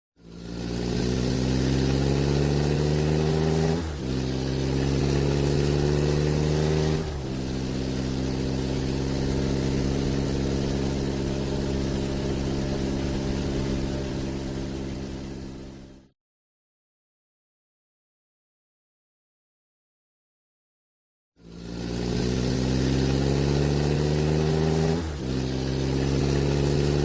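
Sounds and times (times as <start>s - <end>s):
car engine accelerating: 0.2s - 16.1s, 21.4s - 27.0s.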